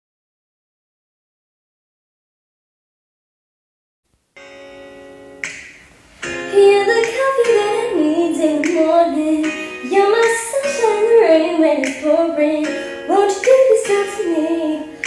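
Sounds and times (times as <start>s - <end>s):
background music: 4.4s - 15.0s
woman singing slow melody: 6.5s - 15.0s.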